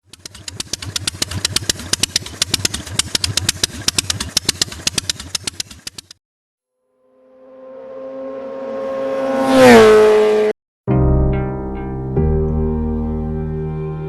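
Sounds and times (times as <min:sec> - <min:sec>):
motorcycle engine idling: 0:00.0 - 0:06.2
sharp exhaust cracks: 0:00.0 - 0:06.2.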